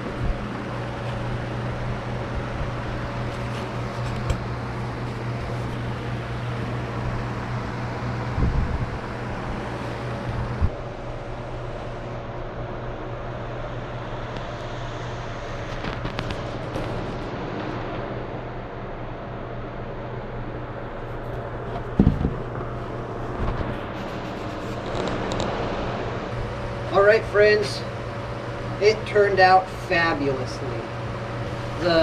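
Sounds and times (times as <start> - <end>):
knocks: 22.0 - 22.5.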